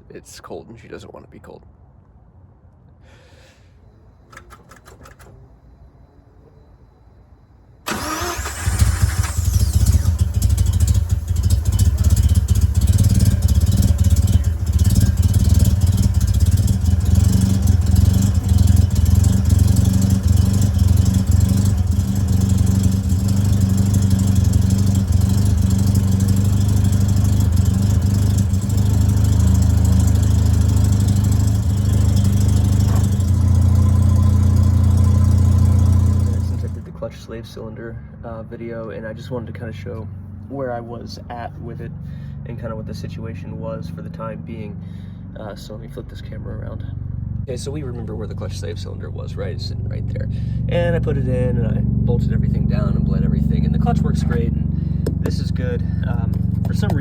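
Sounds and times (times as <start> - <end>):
rotary engine cranking and starting: 4.3 - 5.4, 7.9 - 36.9
engine idling: 7.9 - 37.0, 49.8 - 57.0.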